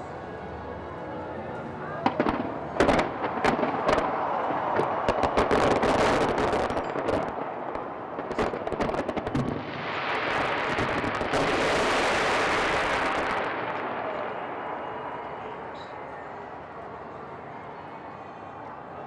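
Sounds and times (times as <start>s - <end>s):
steady rush of noise: 0.0s - 19.0s
fireworks bangs and crackles: 2.0s - 15.9s.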